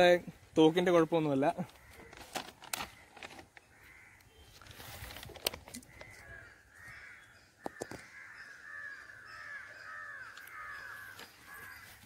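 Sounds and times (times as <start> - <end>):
bird calling: 1.7 - 12.0.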